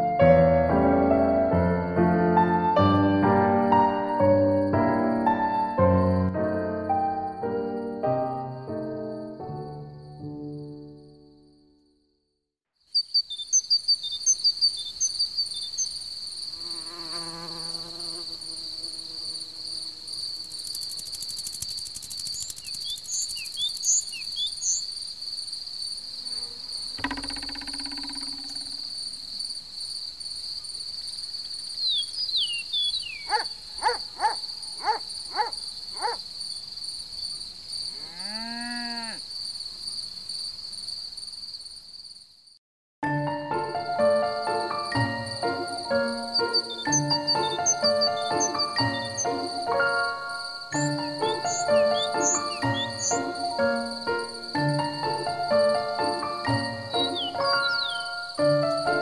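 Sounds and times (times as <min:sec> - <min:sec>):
crickets chirring: 0:08.5 - 0:12.0, 0:12.9 - 0:42.6, 0:43.6 - 0:59.0
bird-like chirps: 0:12.9 - 0:16.0, 0:21.6 - 0:25.0, 0:27.0 - 0:29.0, 0:31.8 - 0:36.2, 0:45.4 - 0:58.9
fly buzzing past: 0:16.4 - 0:22.6, 0:25.9 - 0:29.1
short calls: 0:31.9 - 0:36.2.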